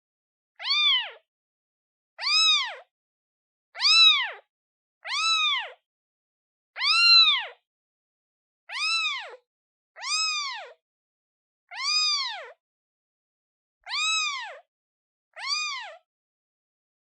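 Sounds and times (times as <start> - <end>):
kitten meowing: 0.6 - 1.2, 2.2 - 2.9, 3.8 - 5.8, 6.8 - 7.6, 8.7 - 9.4, 10.0 - 10.8, 11.7 - 12.6, 13.8 - 14.7, 15.3 - 16.0.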